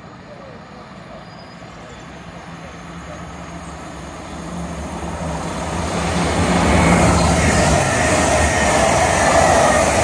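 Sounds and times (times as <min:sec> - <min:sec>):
train passing at speed: 0:00.0 - 0:10.0.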